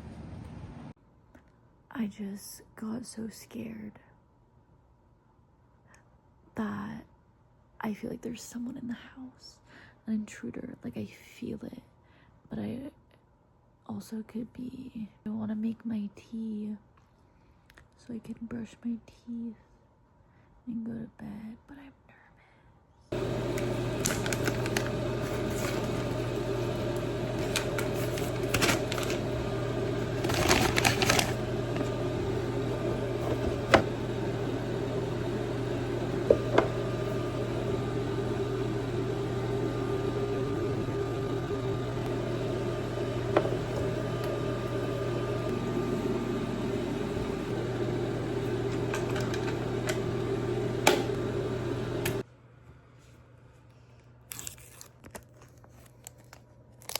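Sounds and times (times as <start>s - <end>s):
microwave oven humming: 23.1s - 52.5s.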